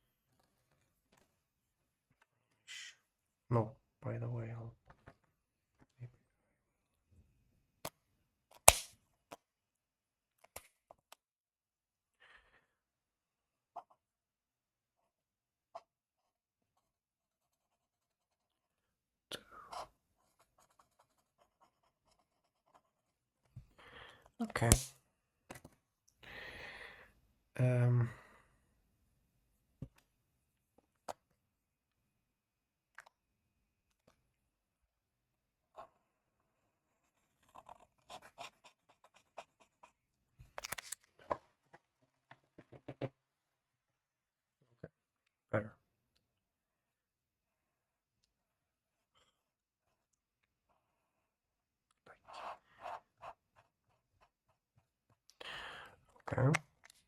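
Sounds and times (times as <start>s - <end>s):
drawing tool scratching on paper: 19.6s - 23.4s, 36.9s - 40.1s, 52.2s - 55.2s
drawing tool scratching paper: 36.9s - 40.1s.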